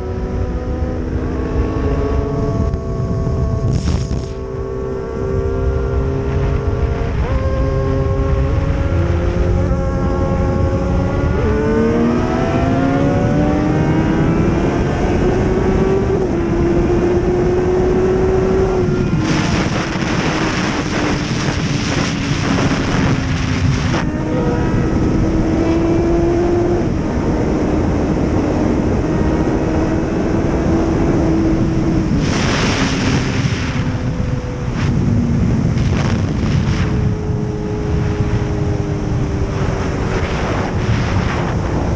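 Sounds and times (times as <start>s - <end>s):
racing motorcycle engine: 0.0s - 41.9s
loud rushing noise: 19.1s - 24.2s, 32.1s - 37.2s, 39.6s - 41.9s.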